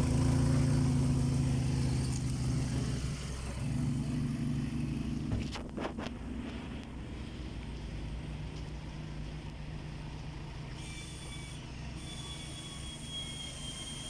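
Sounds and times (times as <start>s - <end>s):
car engine idling: 0.0s - 14.0s
high-pitched whine: 10.6s - 14.0s.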